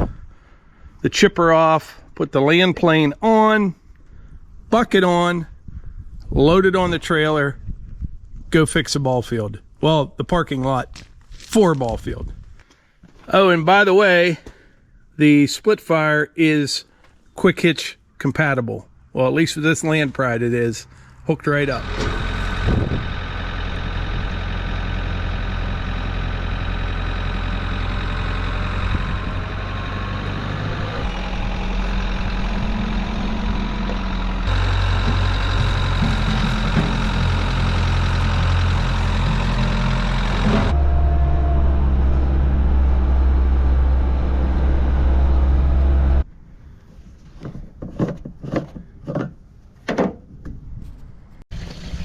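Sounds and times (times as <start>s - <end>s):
tractor engine running: 21.5s - 46.2s
scattered knocks and clatter: 34.8s - 37.6s.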